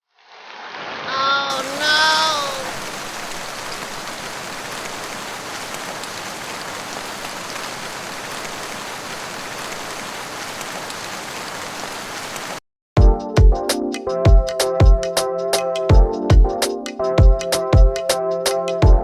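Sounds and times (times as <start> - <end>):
rain-like hiss: 0.0 - 12.6.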